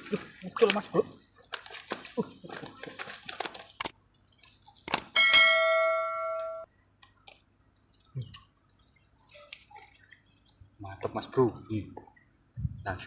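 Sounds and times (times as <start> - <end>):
bell-like ding: 5.2 - 6.6.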